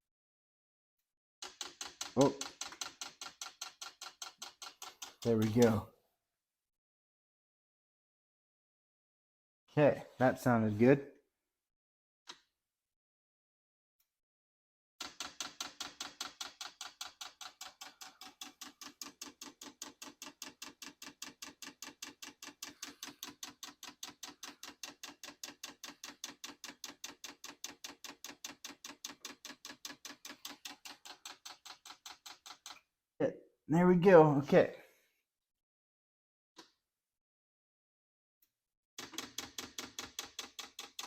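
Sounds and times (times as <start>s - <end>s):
fuel pump clicking rapidly: 1.4s - 5.8s, 15.0s - 32.8s, 39.0s - 41.0s.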